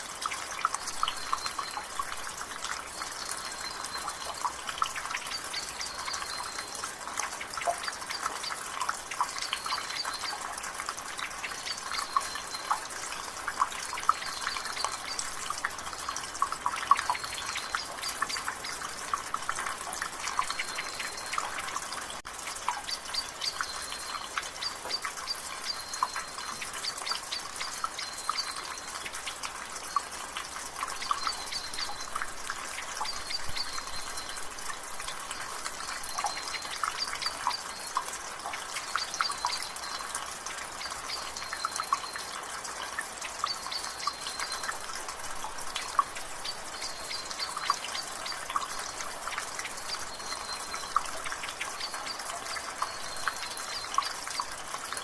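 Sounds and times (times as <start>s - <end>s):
water dripping from a gutter: 0.0s - 55.0s.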